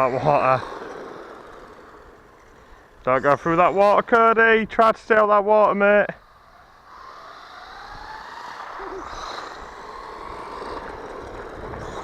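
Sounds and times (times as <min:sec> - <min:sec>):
electric toy car motor whine: 0:00.0 - 0:04.3, 0:06.2 - 0:12.0.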